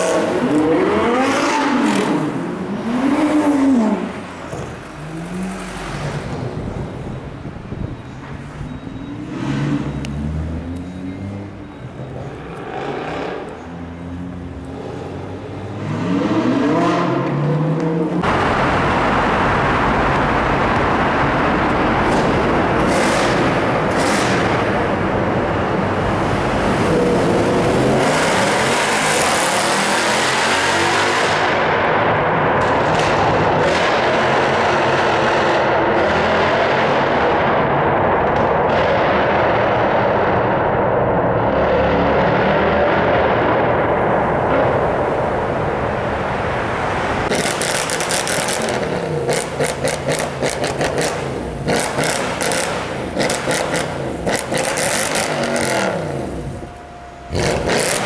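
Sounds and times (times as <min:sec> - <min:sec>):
loud rushing noise: 0:14.4 - 0:58.0
car engine revving: 0:14.7 - 0:58.0.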